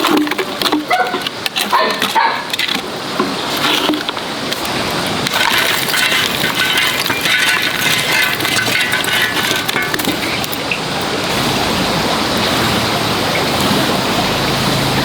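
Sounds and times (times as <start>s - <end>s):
wood fire crackling: 2.4s - 11.3s.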